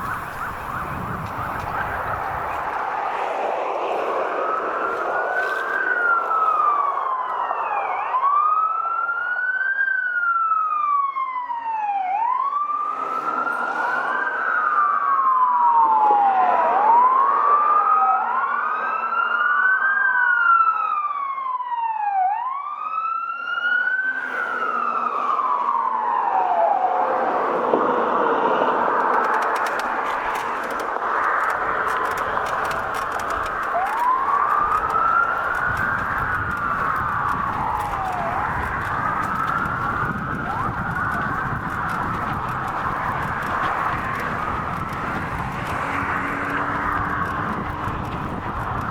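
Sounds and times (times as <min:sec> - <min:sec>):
passing traffic: 0:00.0 - 0:09.0, 0:23.2 - 0:48.9
fire truck sirens wailing: 0:00.0 - 0:48.9.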